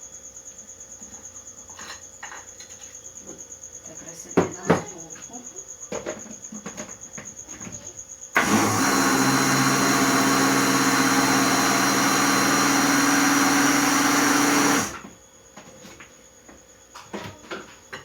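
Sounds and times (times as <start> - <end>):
kitchen blender motor running: 8.4 - 15.1.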